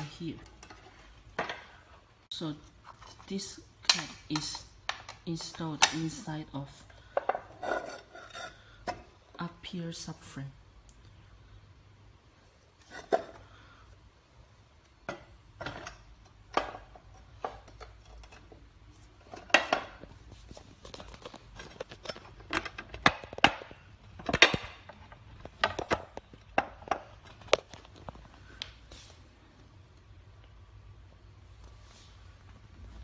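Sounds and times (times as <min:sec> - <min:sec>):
frame parts clicking and knocking: 0:15.1 - 0:28.1.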